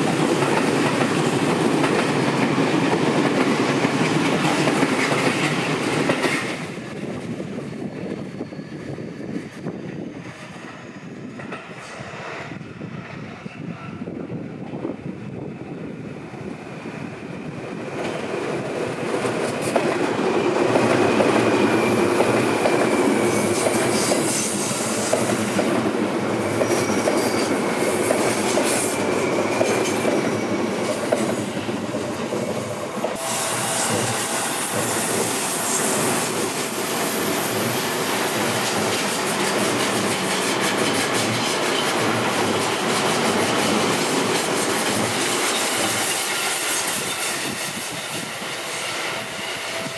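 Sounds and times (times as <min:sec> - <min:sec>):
train wheels rumbling on rails: 0:00.0 - 0:49.9
wheel squeal: 0:33.2 - 0:49.9.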